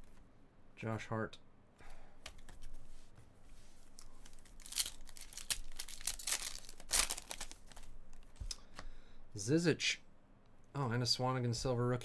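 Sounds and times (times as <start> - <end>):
wrapper crinkling and tearing: 4.2 - 8.2.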